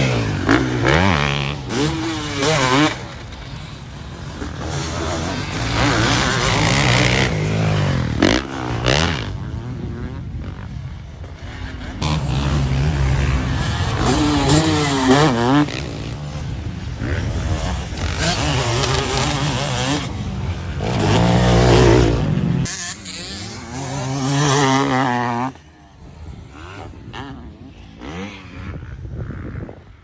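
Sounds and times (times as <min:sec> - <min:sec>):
motocross bike engines revving: 0:00.0 - 0:30.0.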